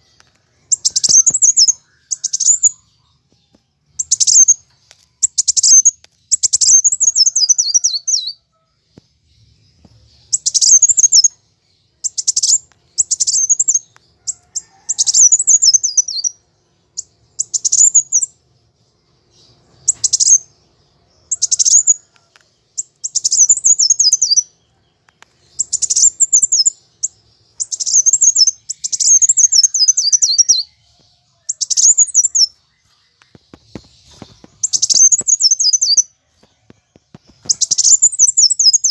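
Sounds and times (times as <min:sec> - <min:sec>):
bird twittering with falling trills: 0:00.0 - 0:18.4, 0:19.0 - 0:38.9.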